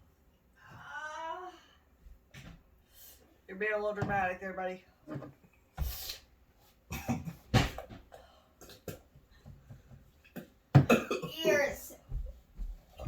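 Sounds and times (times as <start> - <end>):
person coughing and gasping: 6.9 - 9.1, 10.3 - 11.8.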